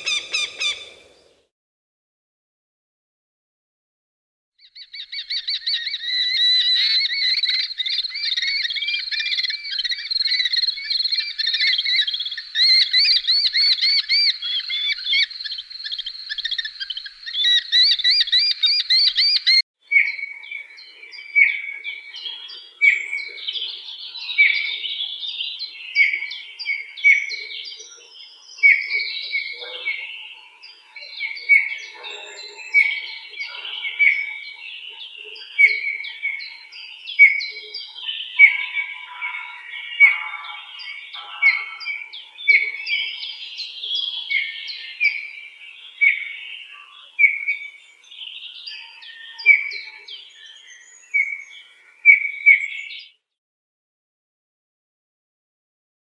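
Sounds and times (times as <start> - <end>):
birds chirping chorus: 0.0 - 1.4, 4.6 - 53.3
short bird calls: 0.0 - 1.4.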